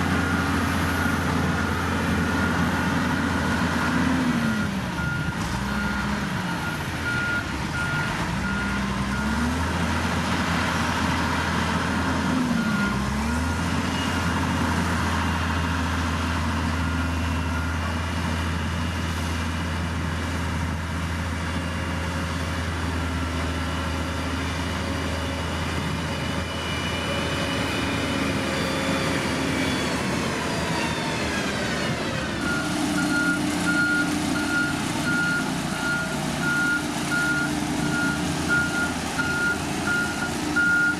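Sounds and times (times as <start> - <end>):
heavy machine engine running: 0.0 - 40.9
reversing alarm beeping: 0.2 - 9.5, 26.1 - 40.9.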